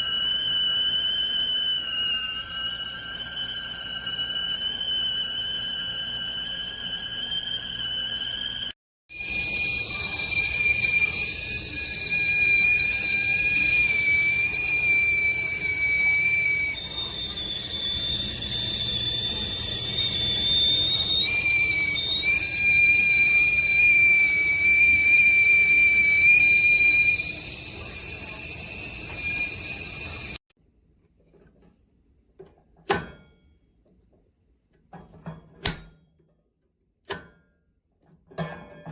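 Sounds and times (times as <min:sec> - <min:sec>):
kettle whistling: 0:00.0 - 0:30.4.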